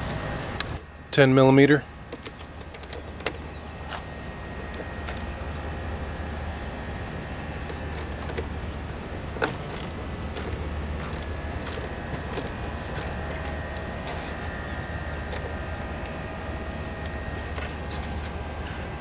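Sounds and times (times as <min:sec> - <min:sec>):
steady low hum: 0:00.0 - 0:19.0
socket ratchet clicking: 0:02.2 - 0:03.4, 0:04.7 - 0:05.4, 0:07.7 - 0:08.5, 0:09.6 - 0:13.9.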